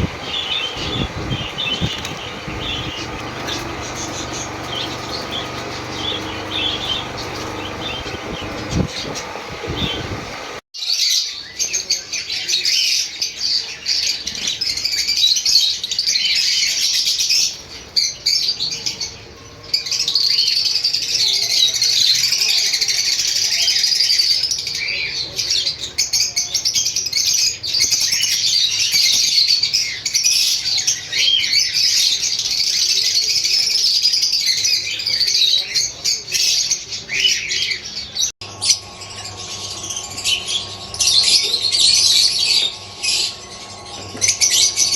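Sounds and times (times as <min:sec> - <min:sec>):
lovebirds chattering: 0:00.0 - 0:10.6.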